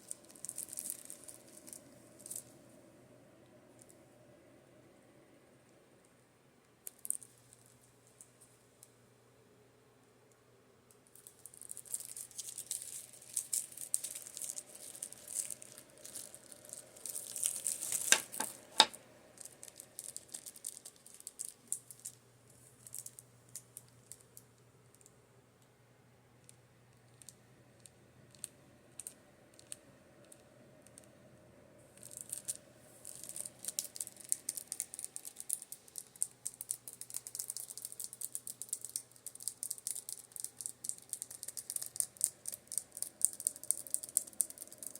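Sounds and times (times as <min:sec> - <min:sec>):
faint fan hum: 0:00.0 - 0:44.9
fingertips tapping makeup brushes: 0:18.0 - 0:18.9.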